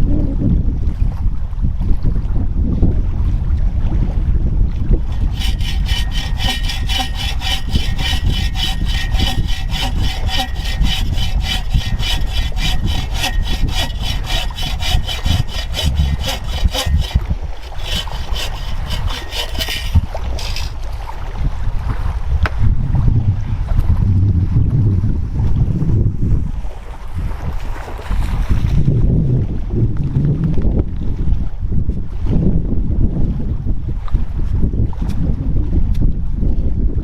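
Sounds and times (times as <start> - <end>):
wind rumble on microphone: 0.0 - 37.0
hand saw cutting wood: 5.1 - 20.9.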